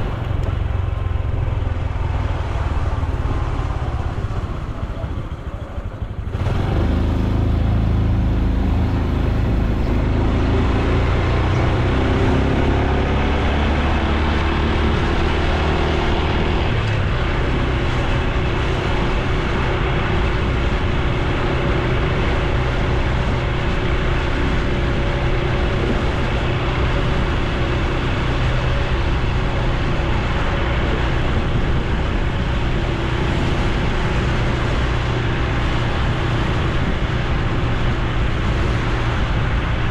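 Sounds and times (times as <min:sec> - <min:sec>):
motorcycle engine accelerating: 0:00.0 - 0:39.9
road noise: 0:00.0 - 0:39.9
wind noise: 0:00.0 - 0:39.9.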